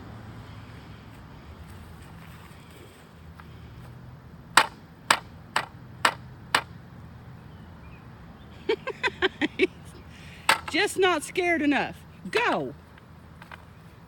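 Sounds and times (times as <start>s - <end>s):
pole striking the ground: 4.5s - 6.8s, 10.5s - 10.9s.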